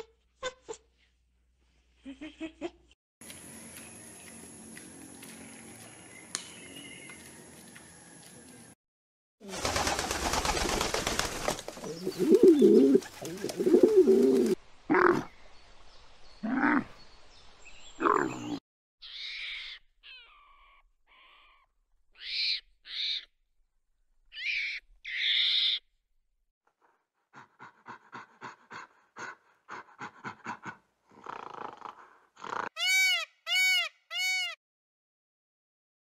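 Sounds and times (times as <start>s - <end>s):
low cooing: 12.0s - 14.6s.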